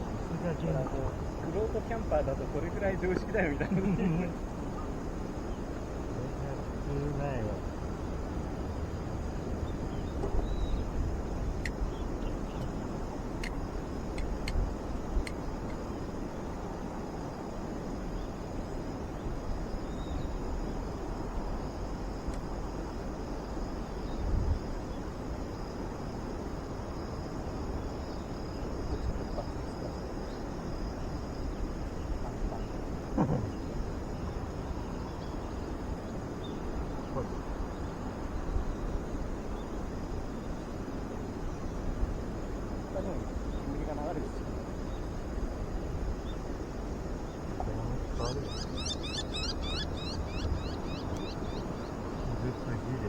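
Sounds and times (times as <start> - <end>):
crickets trilling: 0.0 - 53.0
bird chirping rapidly: 48.0 - 52.7.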